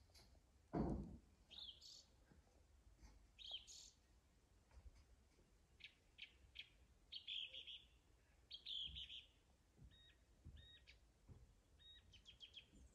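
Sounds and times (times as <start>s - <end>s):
faint songbirds calling: 1.4s - 2.3s, 3.1s - 4.1s, 5.7s - 12.9s.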